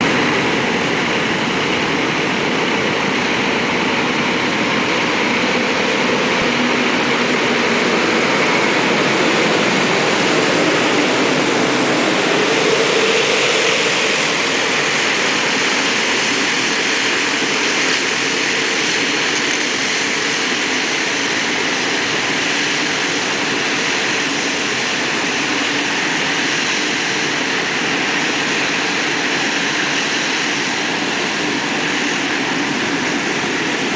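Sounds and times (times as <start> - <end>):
suction air rushing: 0.0 - 17.8
truck engine running: 0.0 - 23.9.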